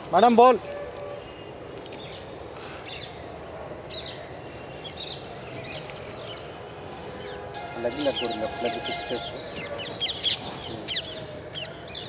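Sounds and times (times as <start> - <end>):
outdoor background noise: 0.0 - 12.0
birds chirping: 7.1 - 12.0.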